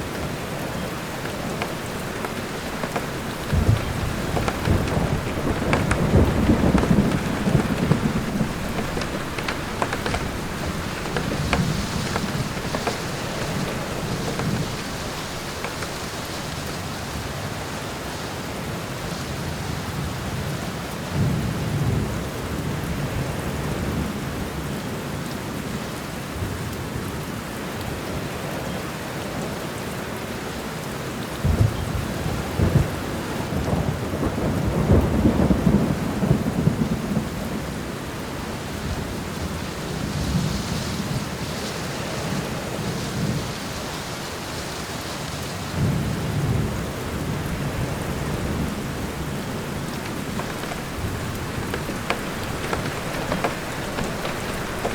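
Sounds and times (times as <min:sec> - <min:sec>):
thunder rumbling: 0:00.0 - 0:17.2, 0:45.8 - 0:54.9
steady rain in forest: 0:00.0 - 0:54.9.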